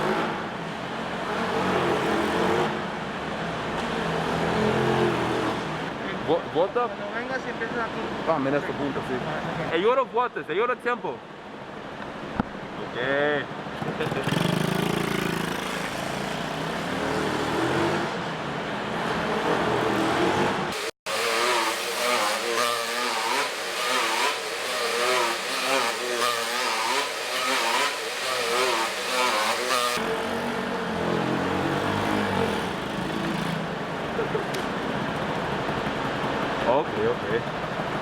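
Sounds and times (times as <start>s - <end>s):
pit bike engine revving: 0.0s - 2.9s, 13.8s - 33.8s.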